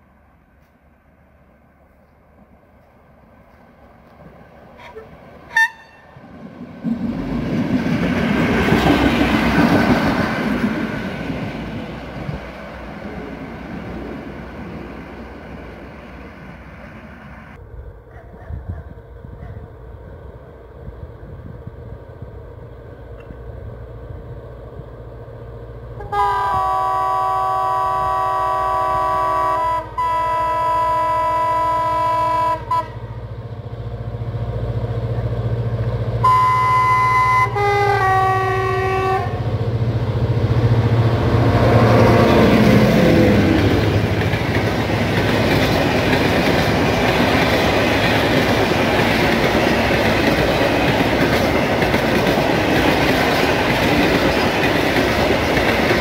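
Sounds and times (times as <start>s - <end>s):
diesel locomotive rumbling: 0.0s - 56.0s
diesel railcar passing: 0.0s - 56.0s
train horn blasts: 4.8s - 6.2s, 26.0s - 33.2s, 36.2s - 39.4s.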